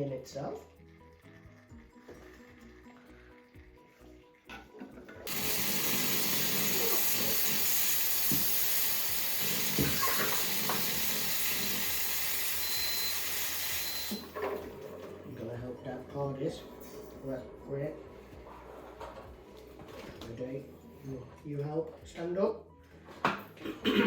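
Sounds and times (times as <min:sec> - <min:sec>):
espresso steam wand hissing: 0:05.3 - 0:14.4.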